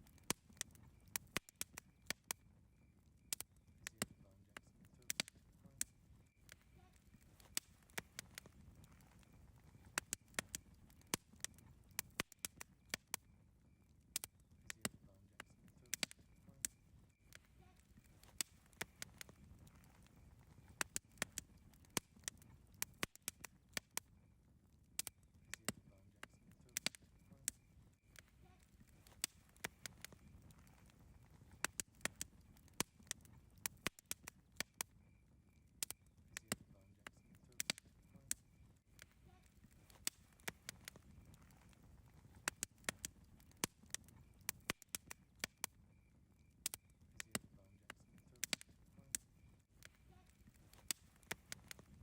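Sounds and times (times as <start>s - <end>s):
campfire crackling and popping: 0.0s - 52.0s
low hiss of burning fire: 0.0s - 52.0s.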